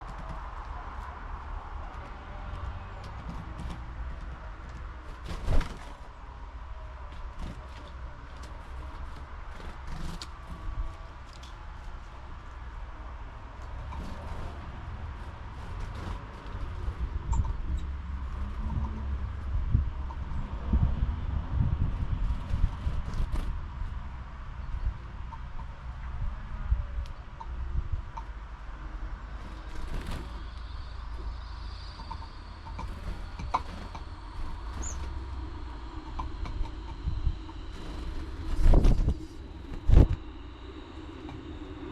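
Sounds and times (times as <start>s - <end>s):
steady low rumble: 0.0s - 41.9s
faint bird chirps: 29.9s - 38.5s.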